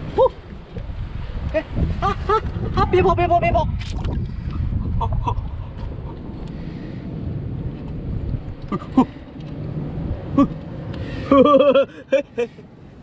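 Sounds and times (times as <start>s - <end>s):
wind buffeting microphone: 0.0s - 12.0s
rough surf: 0.0s - 13.0s
person grunting: 8.7s - 9.1s.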